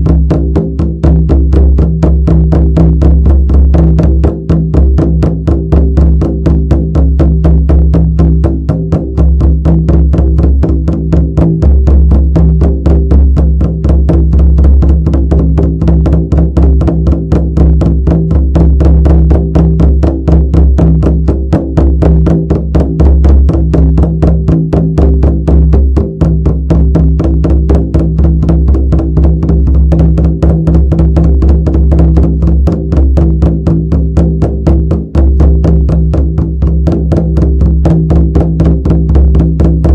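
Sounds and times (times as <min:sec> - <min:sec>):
frame drum beating: 0:00.0 - 0:39.9.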